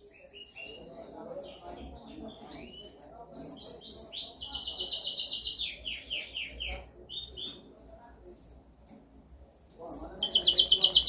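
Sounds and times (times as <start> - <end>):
canary singing: 0.0 - 7.7, 9.6 - 11.0.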